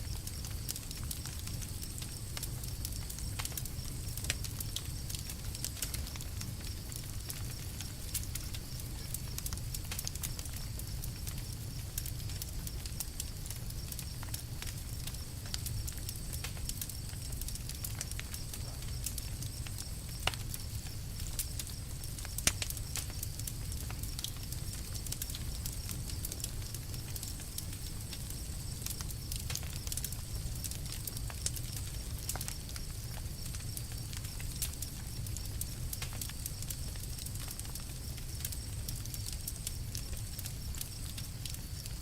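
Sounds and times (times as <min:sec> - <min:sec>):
campfire crackling: 0:00.0 - 0:42.0.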